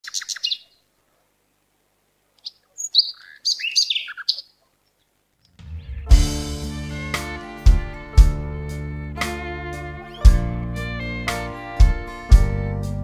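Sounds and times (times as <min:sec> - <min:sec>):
bird chirping: 0:00.0 - 0:00.9, 0:02.3 - 0:11.3
bird whistles: 0:02.4 - 0:04.4.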